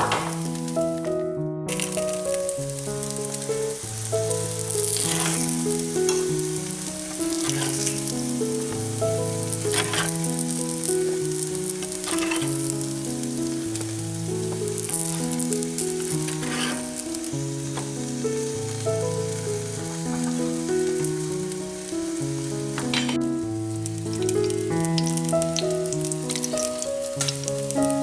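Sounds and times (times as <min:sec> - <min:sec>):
simple melody of held notes: 0:00.3 - 0:28.0
pancakes sizzling in oil: 0:01.7 - 0:28.0
metal spoon scraping: 0:05.0 - 0:05.5, 0:07.4 - 0:08.0, 0:09.7 - 0:10.1, 0:16.3 - 0:16.8.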